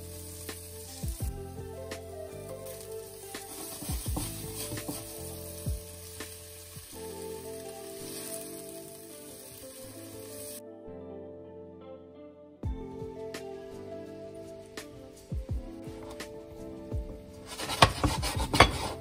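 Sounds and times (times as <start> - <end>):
potatoes sizzling in a pan: 0.0 - 10.6, 17.4 - 19.0
soft background music: 0.0 - 19.0
spatula knocking and scraping a pan: 3.4 - 5.9, 15.9 - 16.3, 17.4 - 19.0.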